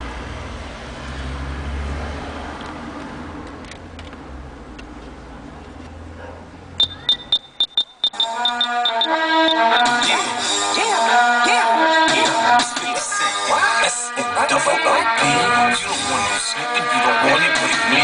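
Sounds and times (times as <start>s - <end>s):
short high beeps: 6.8s - 10.0s
music from car stereo: 7.6s - 18.0s.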